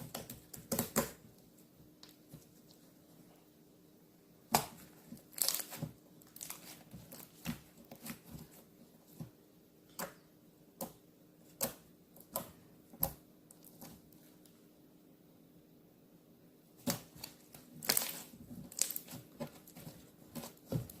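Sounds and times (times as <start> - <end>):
slime popping and crackling: 4.5 - 8.3, 16.8 - 21.0.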